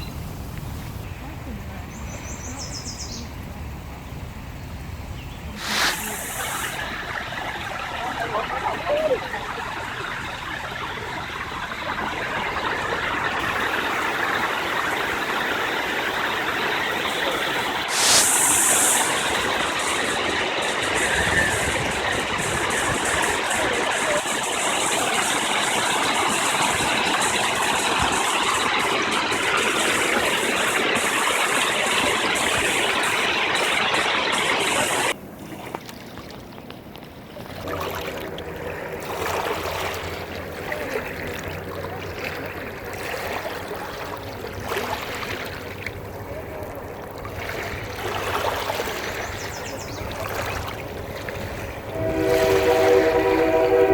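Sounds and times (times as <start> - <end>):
rushing water: 5.4 - 53.9
brief high hiss: 5.6 - 7.0, 17.9 - 20.1.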